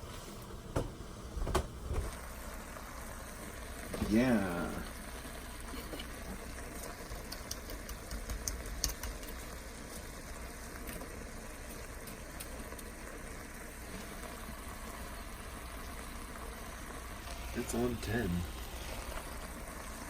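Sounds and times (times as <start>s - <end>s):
food sizzling in a pan: 0.0s - 20.0s
oil pops and crackles: 5.6s - 13.0s.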